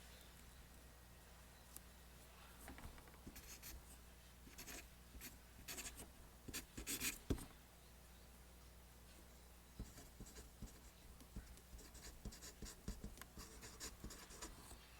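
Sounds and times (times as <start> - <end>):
pencil scratching on paper: 3.3 - 3.8, 4.5 - 7.4, 9.8 - 14.8.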